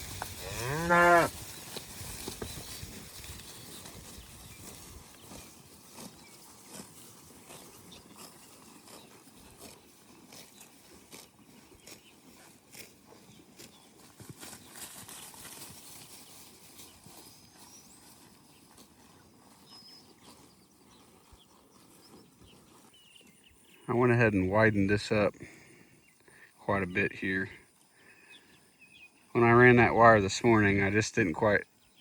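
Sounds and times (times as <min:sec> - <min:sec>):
rustling and steps: 0:00.0 - 0:23.6
cattle grazing crunches: 0:00.0 - 0:32.0.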